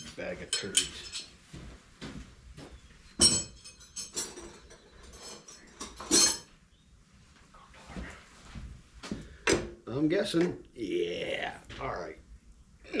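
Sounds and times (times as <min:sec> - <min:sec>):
metal hand tools clinking: 0:00.0 - 0:01.3, 0:03.2 - 0:06.5.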